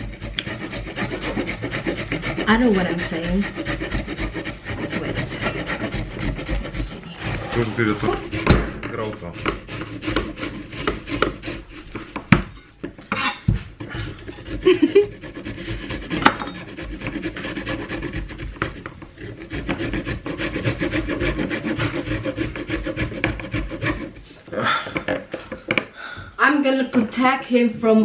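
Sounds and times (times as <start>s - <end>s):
vegetables grated on metal grater: 0.0s - 12.1s, 13.8s - 24.1s.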